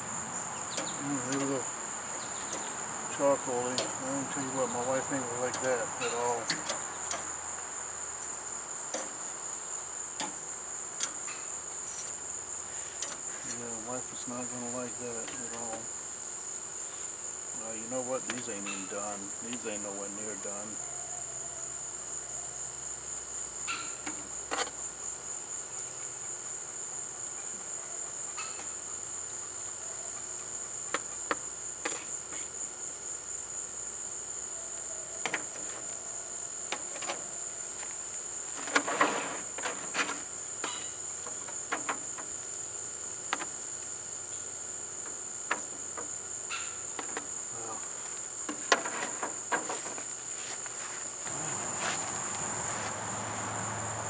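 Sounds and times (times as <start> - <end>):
crickets chirring: 0.0 - 54.0
sharp clicks and knocks: 0.7 - 7.4, 8.2 - 9.4, 37.8 - 42.4, 43.3 - 43.6, 45.0 - 46.2, 47.0 - 51.6.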